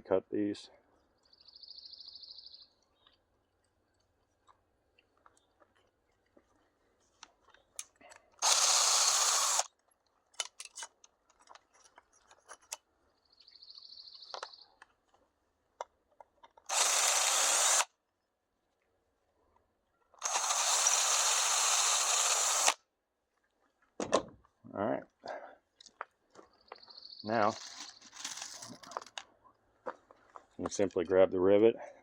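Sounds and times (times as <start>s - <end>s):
power drill drilling: 8.4s - 9.7s, 16.7s - 17.9s, 20.2s - 22.8s.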